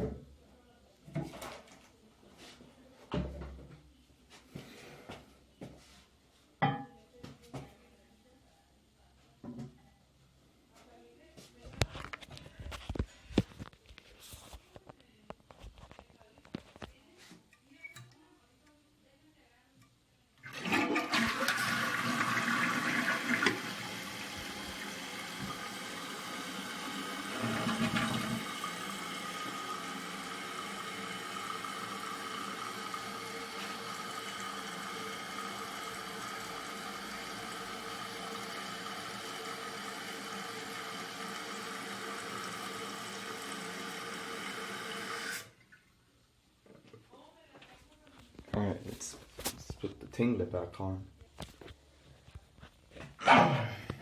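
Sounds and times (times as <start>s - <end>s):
toilet tank refilling hiss: 20.4s - 45.6s
toilet flushing: 20.4s - 45.8s.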